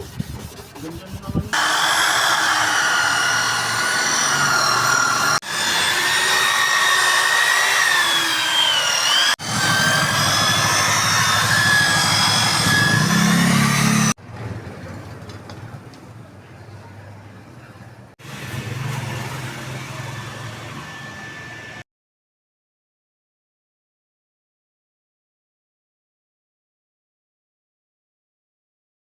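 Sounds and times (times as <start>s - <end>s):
small power tool whining: 1.6s - 14.2s, 19.3s - 21.8s.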